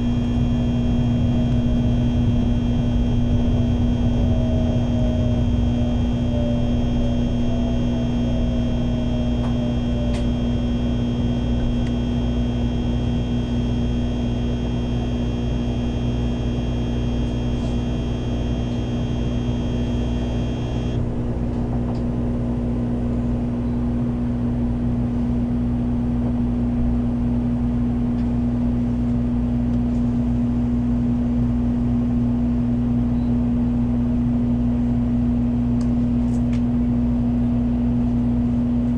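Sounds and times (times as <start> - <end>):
high whining tones: 0.0 - 21.2
train running low rumble: 0.0 - 38.9.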